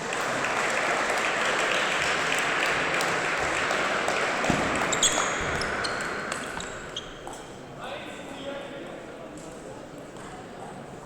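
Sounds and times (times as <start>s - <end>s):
audience clapping: 0.0s - 4.9s.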